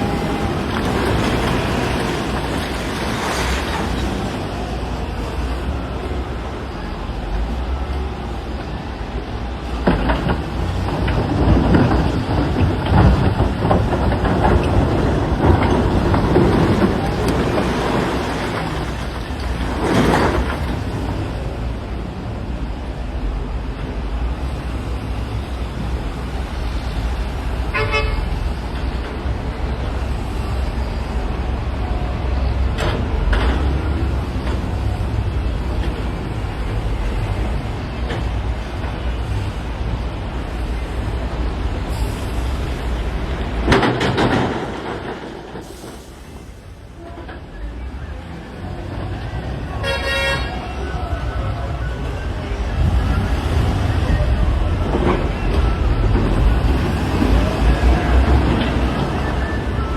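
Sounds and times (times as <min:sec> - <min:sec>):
diesel machinery running: 0:00.0 - 0:59.9
rocks clattering and crashing: 0:00.2 - 0:04.4, 0:10.0 - 0:21.4.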